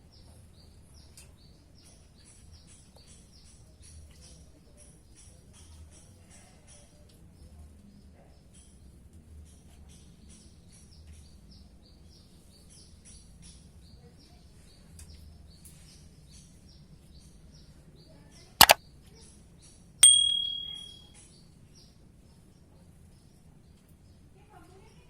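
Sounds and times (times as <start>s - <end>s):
bird chirping: 20.0s - 21.0s
sharp double click: 20.0s - 21.0s
metallic ding ringing: 20.0s - 21.1s.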